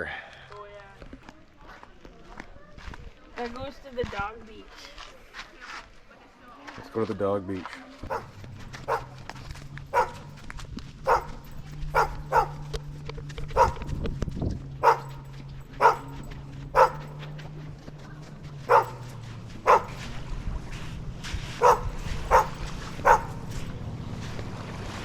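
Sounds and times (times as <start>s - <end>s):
dog barking: 8.0s - 14.1s, 14.8s - 17.5s, 18.6s - 20.2s, 21.5s - 23.8s.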